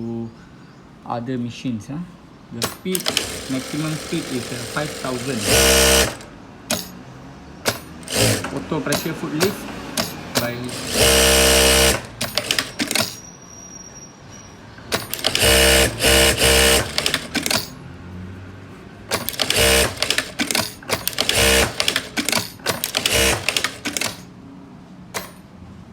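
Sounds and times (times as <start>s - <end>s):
sewing machine stitching: 2.6s - 6.9s, 7.7s - 13.2s, 14.9s - 17.8s, 19.1s - 24.3s
sharp mechanical clicks: 2.6s - 7.0s, 7.6s - 13.2s, 14.9s - 17.8s, 19.1s - 24.3s.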